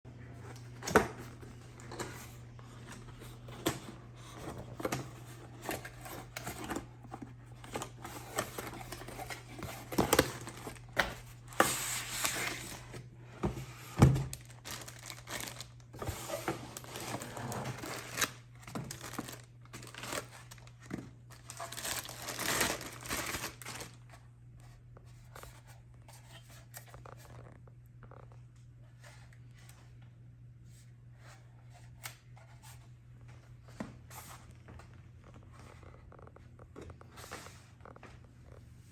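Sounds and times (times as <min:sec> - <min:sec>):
packing material tearing and crinkling: 0:14.2 - 0:24.0.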